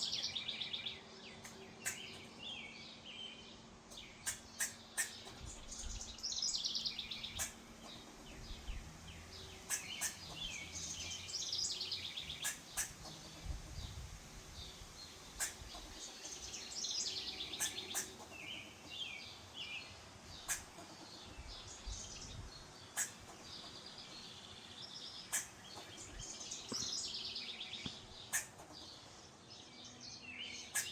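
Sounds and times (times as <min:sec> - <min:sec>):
sharp clicking calls: 0:00.0 - 0:02.4, 0:03.9 - 0:08.7, 0:09.3 - 0:13.8, 0:15.2 - 0:19.2, 0:20.3 - 0:21.2, 0:22.8 - 0:24.2, 0:24.8 - 0:29.2, 0:30.6 - 0:30.9
small birds chirping: 0:00.0 - 0:30.9.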